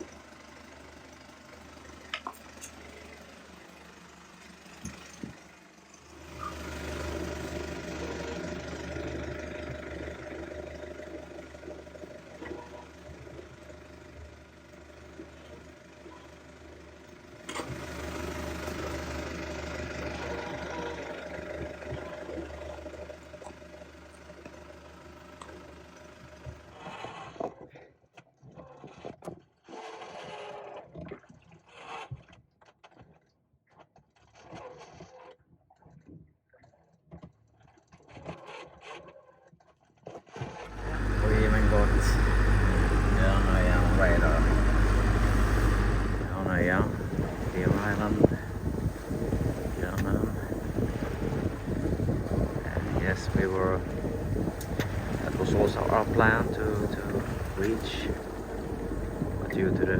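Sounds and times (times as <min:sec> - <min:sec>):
boat engine running: 0:00.0 - 0:27.5, 0:40.4 - 0:59.9.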